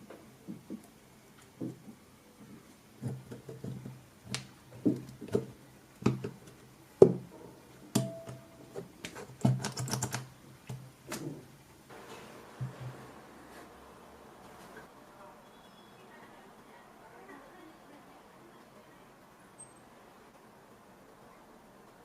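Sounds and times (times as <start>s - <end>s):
rapid clicking: 9.4s - 10.3s.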